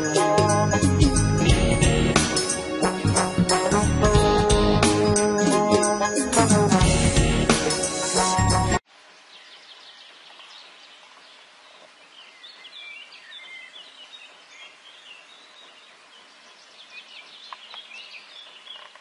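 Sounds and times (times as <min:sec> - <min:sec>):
steady outdoor hiss: 0:07.4 - 0:19.0
birds chirping: 0:09.2 - 0:19.0.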